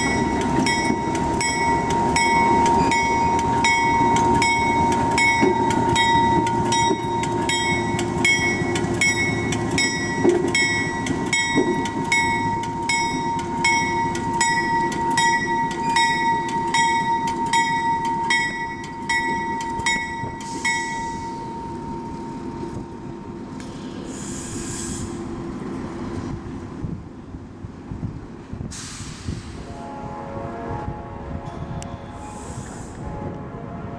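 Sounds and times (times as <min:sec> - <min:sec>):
railroad crossing bell ringing: 0:00.0 - 0:22.7
train rumbling: 0:00.0 - 0:33.9
short hiss: 0:28.7 - 0:29.7.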